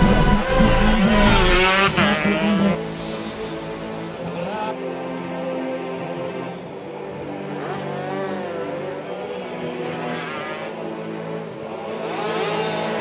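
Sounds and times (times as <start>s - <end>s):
background music: 0.0s - 13.0s
motorcycle engines revving: 0.0s - 13.0s.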